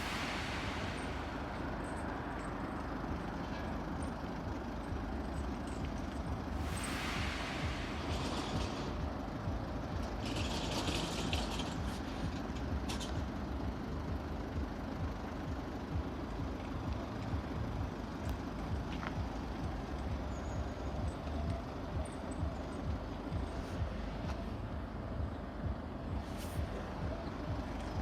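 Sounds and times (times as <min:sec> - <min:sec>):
short bursts of hiss: 0:00.0 - 0:02.6, 0:06.6 - 0:09.4
road traffic rumble: 0:00.0 - 0:28.0.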